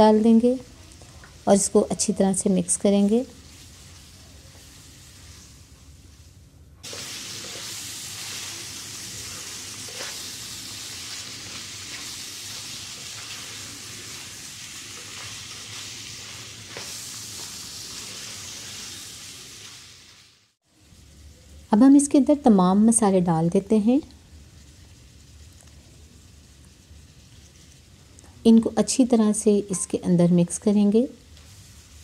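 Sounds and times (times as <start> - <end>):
meat sizzling in a frying pan: 0.0 - 5.7, 6.8 - 22.8, 30.8 - 32.0
spatula stirring: 2.8 - 18.7.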